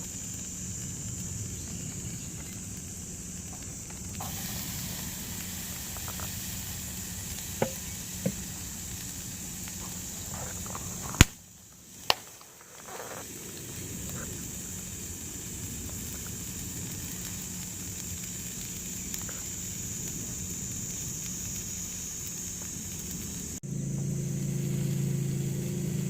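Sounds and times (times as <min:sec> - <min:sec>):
food sizzling over campfire: 0:00.0 - 0:26.0.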